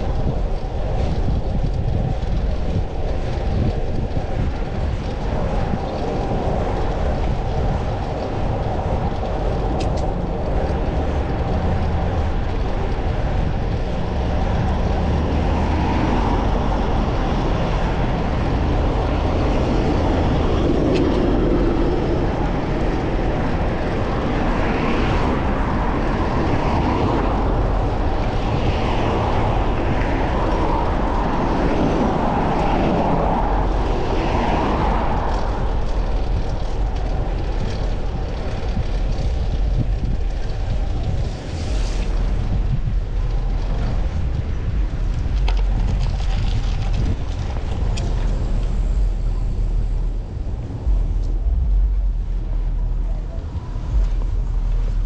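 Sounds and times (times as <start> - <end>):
traffic: 0.0 - 55.0
wind and bicycle road rumble: 0.0 - 55.0.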